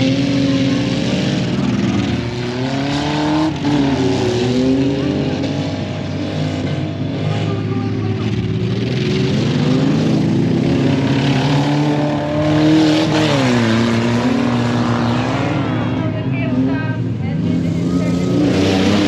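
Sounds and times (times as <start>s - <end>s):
truck engines revving: 0.0s - 19.0s.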